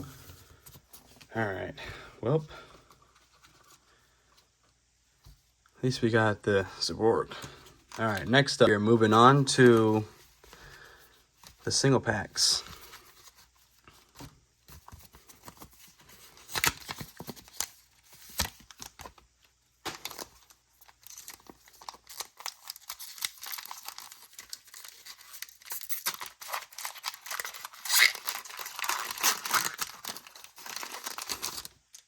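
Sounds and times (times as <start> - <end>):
foil pack crinkling and tearing: 15.2 - 19.2, 19.8 - 32.0.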